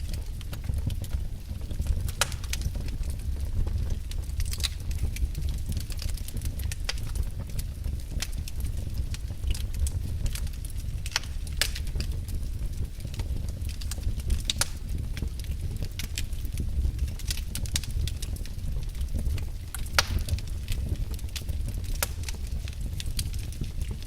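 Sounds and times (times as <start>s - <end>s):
low rumble of flames: 0.0s - 24.0s
wood fire crackling: 0.0s - 24.0s.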